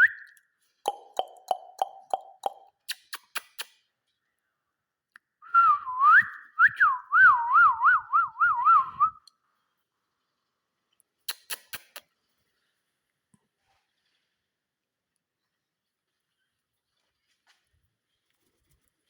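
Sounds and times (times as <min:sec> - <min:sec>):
wavering whistle: 0:05.4 - 0:09.2.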